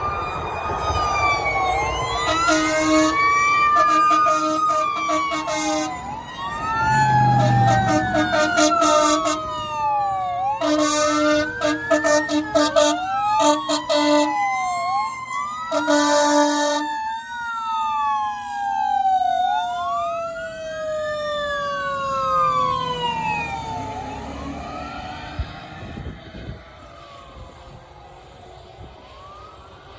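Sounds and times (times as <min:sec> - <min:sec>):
fire engine siren wailing: 0:00.0 - 0:29.9
short horn blasts: 0:02.3 - 0:03.2, 0:03.8 - 0:06.0, 0:07.4 - 0:09.5, 0:10.6 - 0:14.3.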